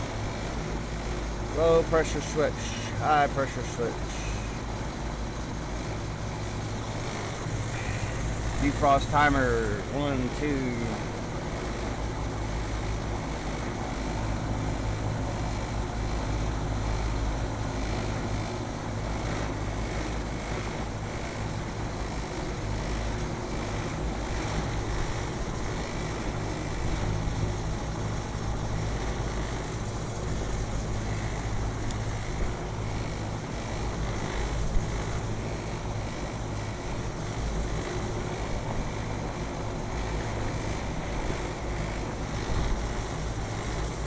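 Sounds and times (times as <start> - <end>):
fan noise: 0.0 - 44.0
low mechanical hum: 0.0 - 44.0.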